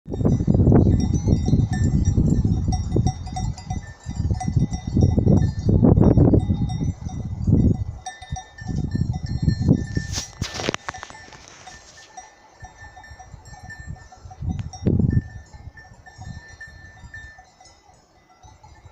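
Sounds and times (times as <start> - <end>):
wind buffeting microphone: 0.1 - 12.0, 12.6 - 17.7
faint high ringing tones: 0.2 - 18.9.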